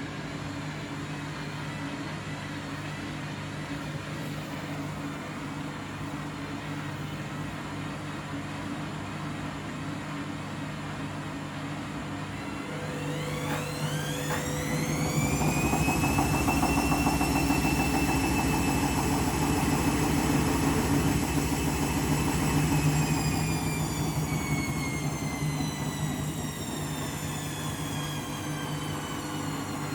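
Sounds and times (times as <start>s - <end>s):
washing machine motor whining: 12.1s - 29.9s.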